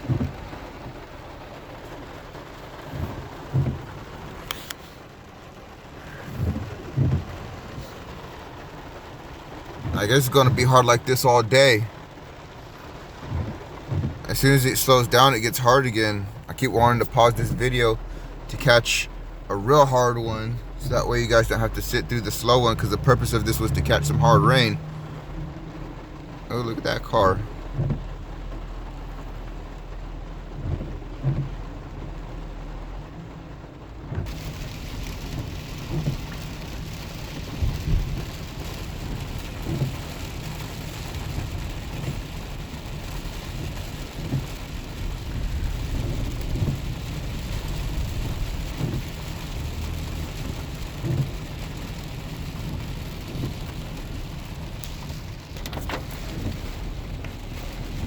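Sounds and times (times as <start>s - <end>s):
heavy rain on truck: 0.0s - 58.0s
truck rumbling on wet road: 0.0s - 58.0s
low thumps: 2.9s - 4.1s.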